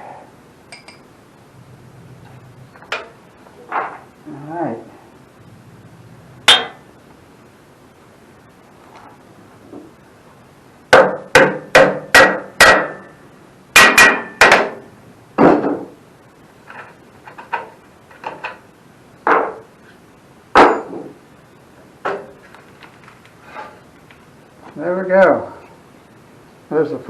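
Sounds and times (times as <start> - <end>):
hammer striking metal: 6.5 - 6.8, 10.9 - 13.2, 13.8 - 14.8.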